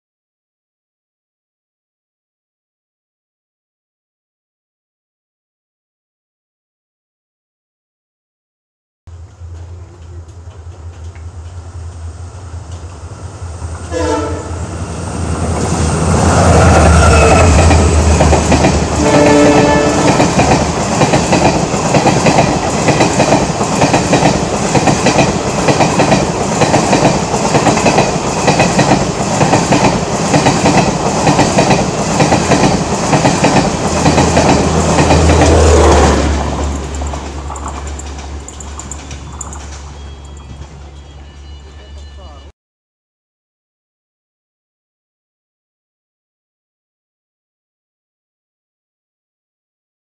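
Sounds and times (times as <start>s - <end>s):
locomotive engine drone: 9.1s - 21.0s, 33.8s - 42.5s
train horn blasts: 13.8s - 14.7s, 18.9s - 20.3s
wheels clattering over rail joints: 20.3s - 41.0s.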